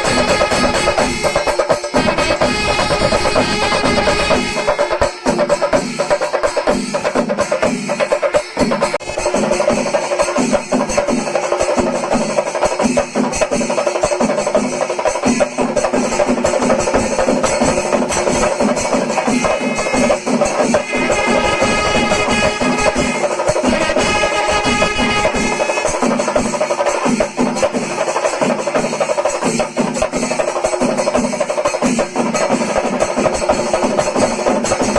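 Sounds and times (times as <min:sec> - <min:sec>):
cymbals clashing: 0:00.0 - 0:34.9
drums beaten with sticks: 0:00.0 - 0:34.9.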